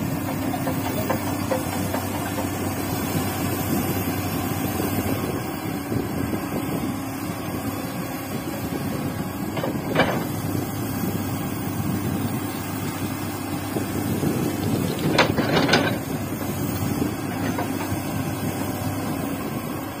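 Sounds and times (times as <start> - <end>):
sharp machine working sounds: 0.0 - 5.4
excavator diesel engine running: 0.0 - 20.0.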